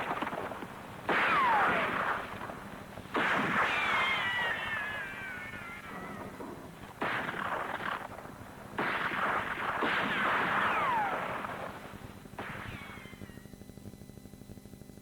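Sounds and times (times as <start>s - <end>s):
blast bangs: 0.0s - 13.3s
falling whistle: 3.7s - 6.3s.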